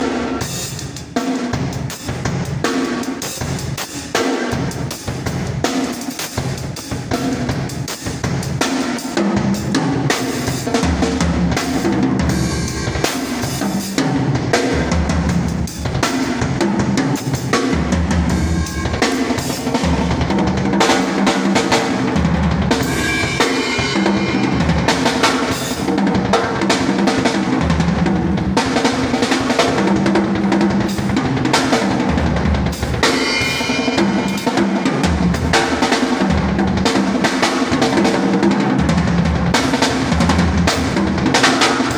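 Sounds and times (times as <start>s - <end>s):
drum kit playing: 0.0s - 41.9s.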